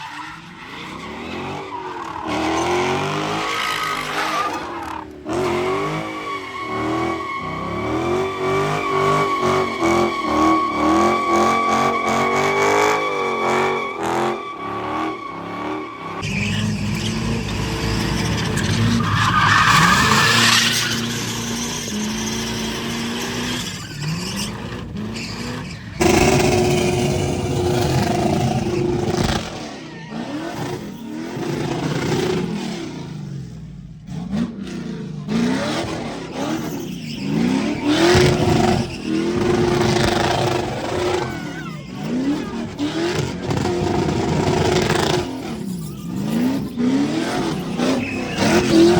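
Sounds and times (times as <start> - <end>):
car engine revving: 0.0 - 48.9
tyres squealing: 5.7 - 31.4, 36.3 - 48.9.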